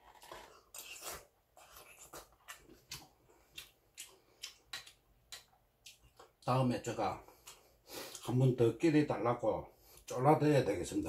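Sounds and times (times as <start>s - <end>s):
man chewing with wet mouth sounds: 0.0s - 6.5s, 7.2s - 8.4s.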